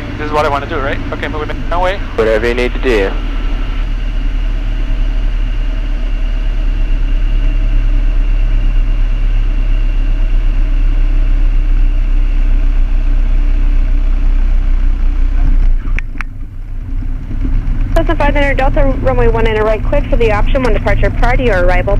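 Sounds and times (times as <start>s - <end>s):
propeller plane engine droning: 0.0s - 21.9s.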